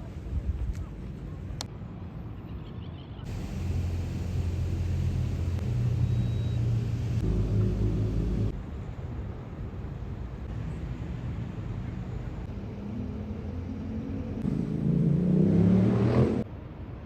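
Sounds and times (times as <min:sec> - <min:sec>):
deep boat engine hum: 0:03.3 - 0:08.6.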